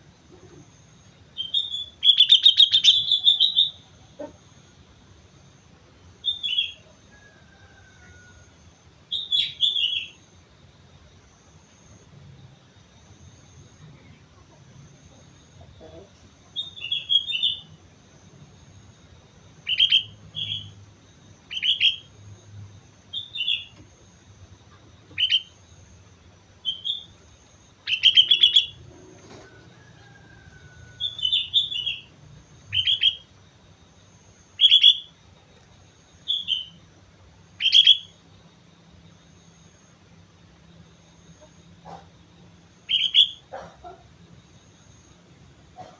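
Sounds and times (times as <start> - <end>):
bulbul singing: 0.9 - 4.7, 9.1 - 10.3, 15.0 - 17.8, 18.6 - 26.0, 26.6 - 29.4, 30.1 - 35.6, 36.2 - 39.6, 40.9 - 44.0.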